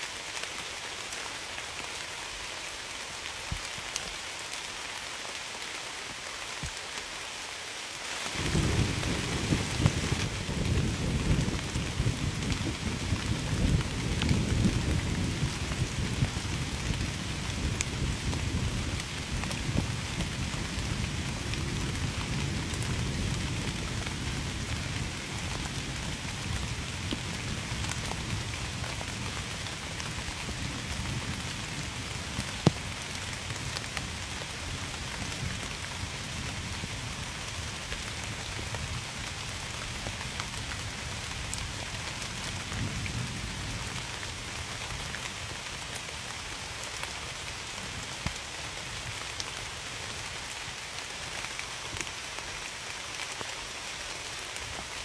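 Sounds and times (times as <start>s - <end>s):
rain pattering: 0.0s - 55.0s
low rumble of thunder: 8.4s - 39.8s.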